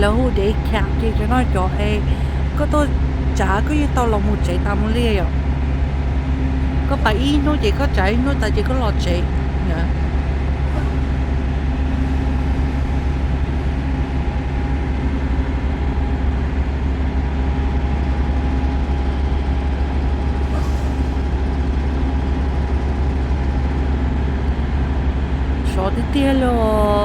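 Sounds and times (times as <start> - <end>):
faint whine: 0.0 - 27.0
truck engine and road noise: 0.0 - 27.0.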